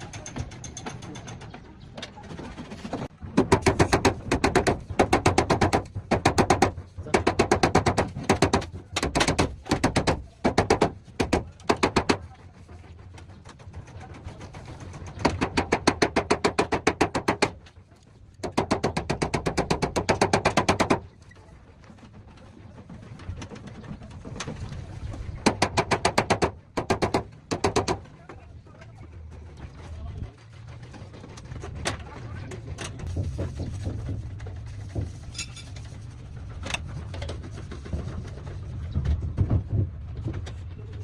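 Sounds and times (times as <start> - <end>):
hammering on sheet metal: 3.4 - 12.3, 15.2 - 17.6, 18.4 - 21.1, 25.4 - 28.1.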